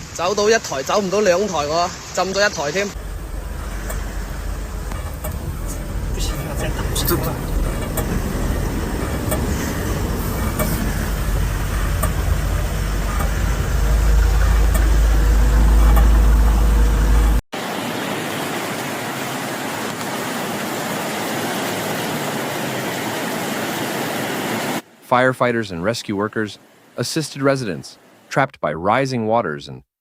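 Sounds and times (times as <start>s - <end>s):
deep rumble: 2.9s - 17.4s.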